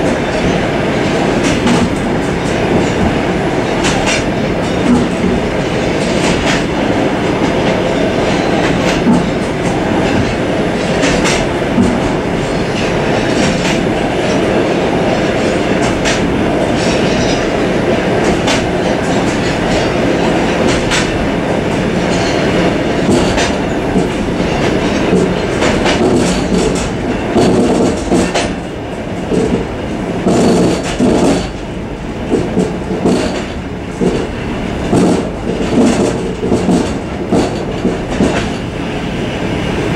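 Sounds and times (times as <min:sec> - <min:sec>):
pulsing train clatter: 0:00.0 - 0:39.9
train wheels rumbling on rail: 0:00.0 - 0:39.9
clicks over rail joints: 0:03.8 - 0:06.8, 0:07.4 - 0:12.1, 0:18.2 - 0:21.2, 0:22.1 - 0:28.6, 0:29.3 - 0:31.6, 0:32.3 - 0:38.7.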